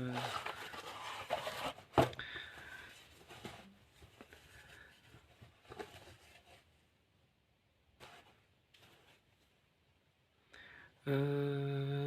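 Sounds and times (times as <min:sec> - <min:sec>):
plastic crinkling and scraping: 0:00.0 - 0:06.7.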